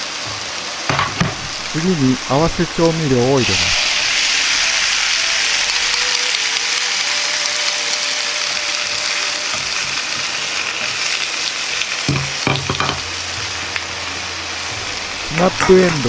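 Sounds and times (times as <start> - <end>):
vegetables sizzling in frying pan: 0.0 - 16.0
knock: 12.1 - 13.0.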